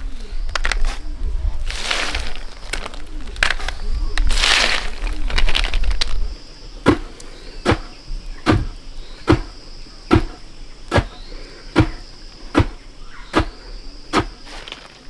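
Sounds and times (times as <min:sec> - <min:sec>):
insects droning: 0:00.0 - 0:15.0
loud rustling: 0:01.6 - 0:06.3.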